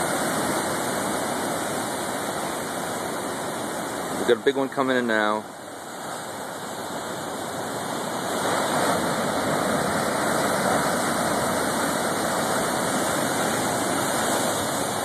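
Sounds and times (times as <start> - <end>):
waves breaking on rocks: 0.0 - 15.0.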